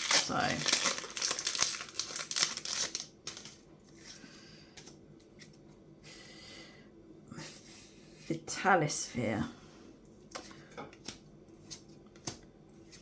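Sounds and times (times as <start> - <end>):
foil pack tearing and crinkling: 0.0 - 3.6.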